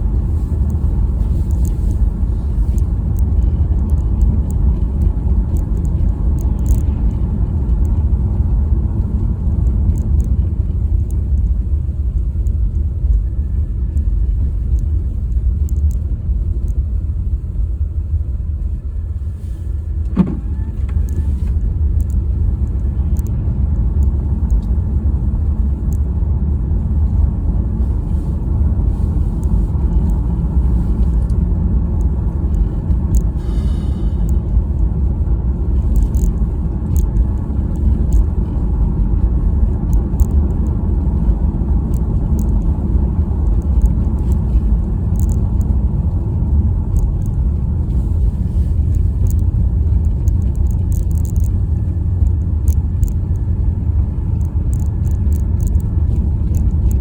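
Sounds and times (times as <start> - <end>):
car road and engine rumble: 0.0 - 57.0
sharp knock: 20.2 - 20.4.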